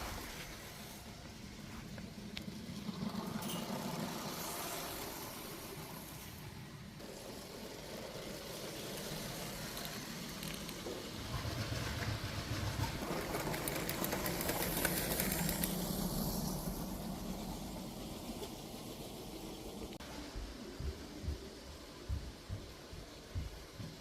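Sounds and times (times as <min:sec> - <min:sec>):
toy train running on plastic track: 0:02.0 - 0:19.9.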